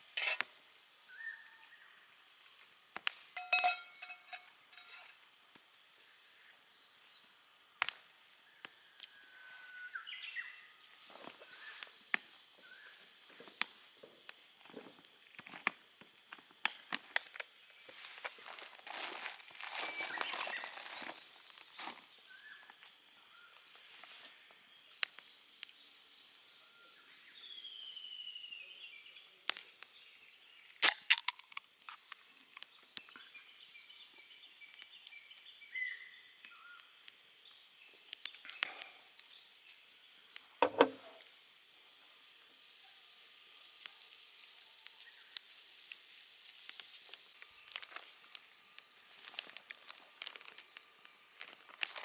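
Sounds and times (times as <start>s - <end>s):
campfire crackling and popping: 2.1s - 6.0s, 7.4s - 9.1s, 13.2s - 22.2s, 24.7s - 26.4s, 29.4s - 30.0s, 30.6s - 52.0s.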